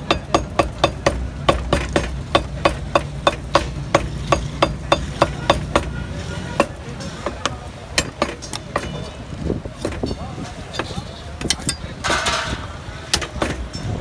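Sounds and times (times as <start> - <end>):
meat cleaver chopping: 0.0 - 9.1.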